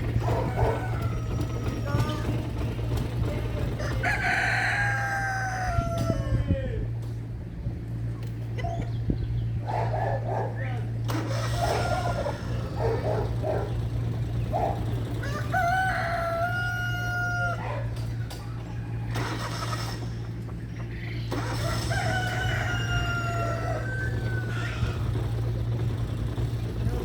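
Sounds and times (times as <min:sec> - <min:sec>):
steady low hum: 0:00.0 - 0:27.0
rooster crowing: 0:00.2 - 0:02.3, 0:03.8 - 0:06.8, 0:11.5 - 0:13.2, 0:15.1 - 0:18.0, 0:21.4 - 0:25.4.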